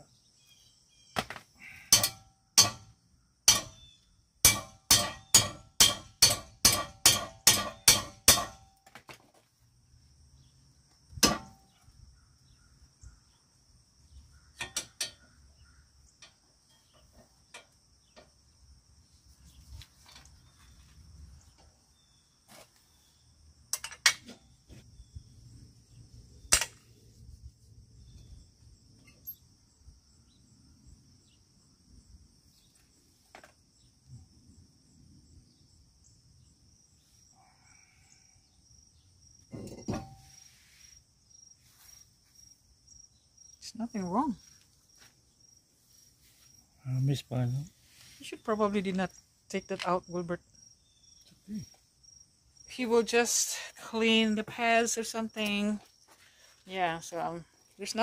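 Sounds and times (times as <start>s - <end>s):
sharp metallic knocks: 1.9s - 3.8s, 4.4s - 8.7s, 11.2s - 11.7s, 14.6s - 15.3s
crickets chirping: 9.3s - 58.0s.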